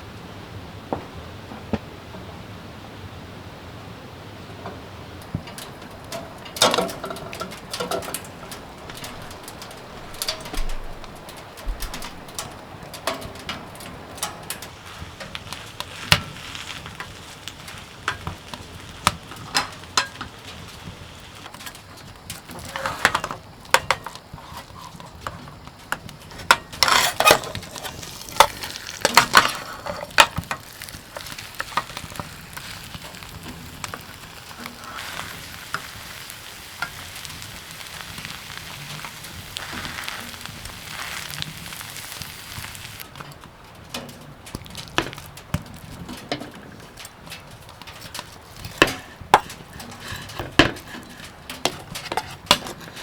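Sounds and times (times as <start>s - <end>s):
utensil clicking and scraping: 5.5s - 45.7s
food sizzling in a pan: 11.8s - 43.1s.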